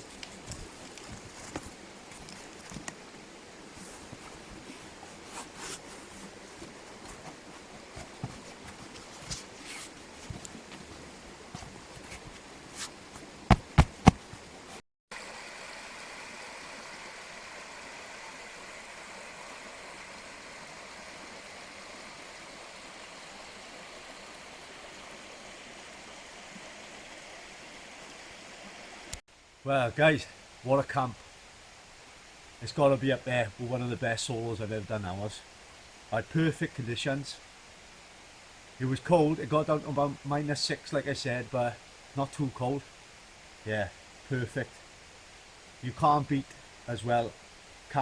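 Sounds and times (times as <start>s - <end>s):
clicks and rustles: 0.0s - 3.0s
mountain stream running: 0.0s - 48.0s.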